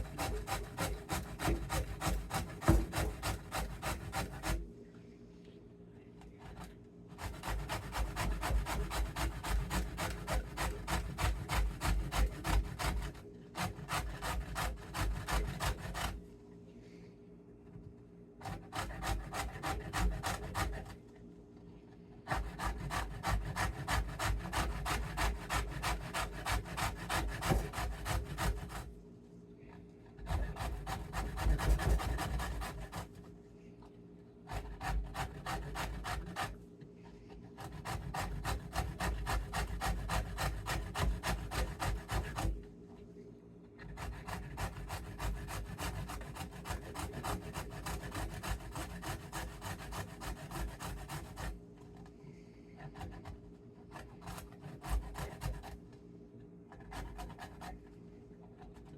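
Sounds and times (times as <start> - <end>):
turnip being grated: 0.0 - 4.6, 6.4 - 16.2, 22.3 - 28.9, 30.2 - 33.2, 34.5 - 36.6, 37.6 - 42.6, 43.8 - 51.5.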